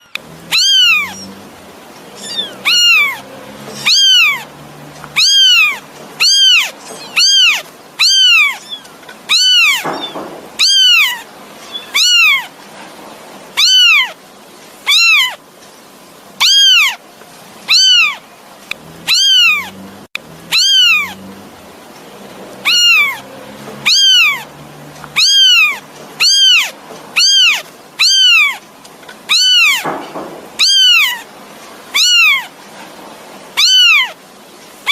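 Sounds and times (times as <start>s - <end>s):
kitten meowing: 0.4s - 1.4s, 2.2s - 4.5s, 5.1s - 12.5s, 13.6s - 14.2s, 14.9s - 15.4s, 16.4s - 17.0s, 17.7s - 18.2s, 19.0s - 19.8s, 20.5s - 21.2s, 22.6s - 24.5s, 25.1s - 28.6s, 29.3s - 31.3s, 32.0s - 32.5s, 33.6s - 34.2s.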